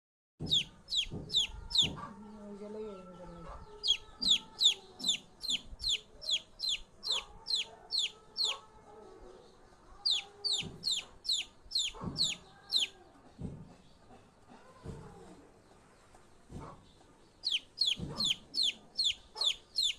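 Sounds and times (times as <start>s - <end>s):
bird rapid high-pitched chirps: 0.4s - 2.0s, 3.8s - 8.6s, 10.1s - 12.9s, 17.4s - 19.9s
fainter lower bird calls: 3.7s - 8.6s, 10.0s - 13.0s, 17.4s - 19.9s.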